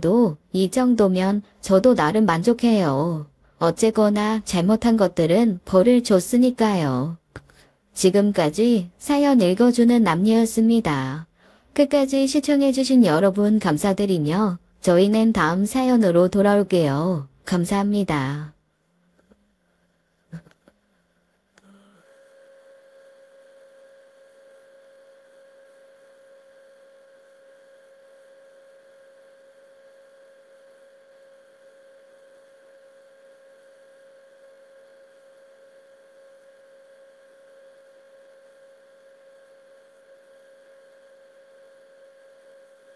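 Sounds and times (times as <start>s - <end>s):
faint electronic hum: 0.0s - 42.9s.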